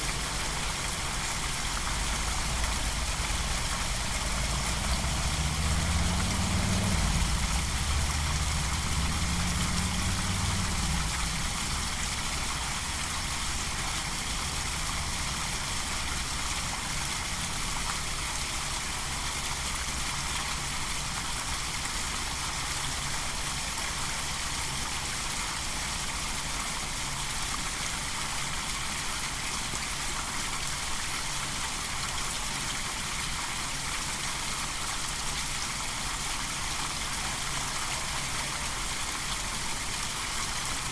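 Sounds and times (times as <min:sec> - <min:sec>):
vehicle engine rumble: 0:00.0 - 0:20.7, 0:35.2 - 0:40.9
outdoor ambience hiss: 0:00.0 - 0:40.9.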